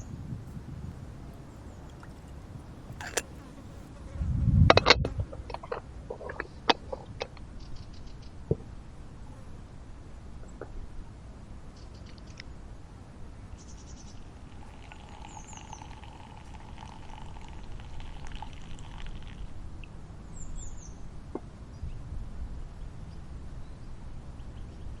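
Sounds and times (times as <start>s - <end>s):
birds chirping: 0.0s - 3.9s.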